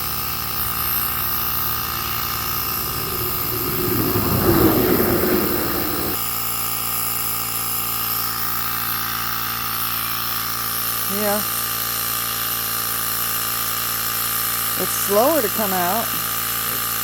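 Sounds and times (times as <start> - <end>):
loud rushing noise: 1.0 - 6.2.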